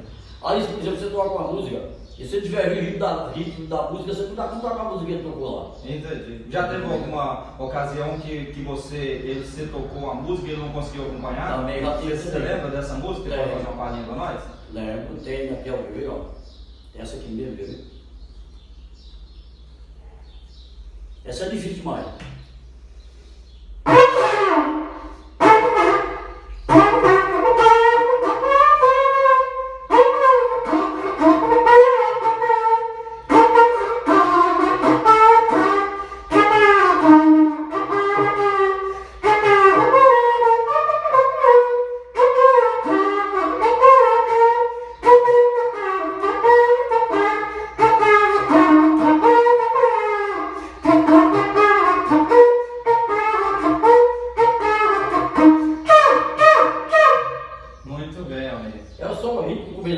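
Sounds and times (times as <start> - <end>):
cattle-horn trumpet wavering notes: 23.8 - 58.3.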